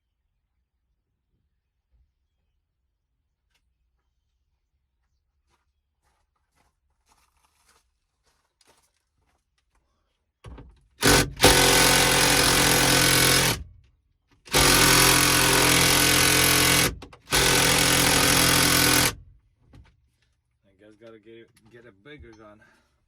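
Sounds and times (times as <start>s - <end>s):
impact wrench hammering: 11.0s - 13.7s, 14.5s - 19.2s.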